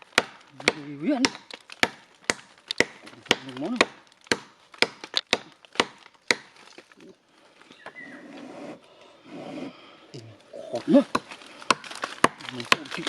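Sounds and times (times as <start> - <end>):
tool chopping into wood: 0.0 - 6.9, 10.8 - 13.0.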